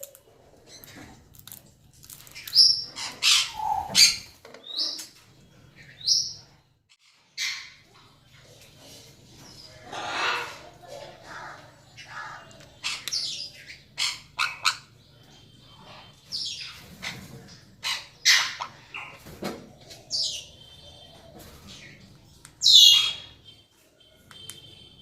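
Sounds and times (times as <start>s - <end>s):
parrots squawking: 2.4s - 5.0s, 7.0s - 7.9s, 9.5s - 15.0s, 15.6s - 19.3s, 22.6s - 23.4s.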